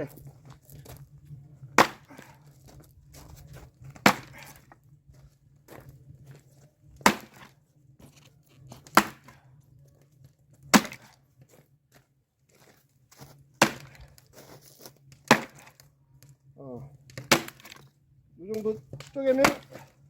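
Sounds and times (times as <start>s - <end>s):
axe chopping wood: 1.8s - 2.4s, 4.0s - 4.6s, 7.0s - 7.5s, 8.9s - 9.4s, 10.7s - 11.2s, 13.6s - 14.2s, 15.2s - 15.9s, 17.1s - 17.8s, 18.5s - 20.0s.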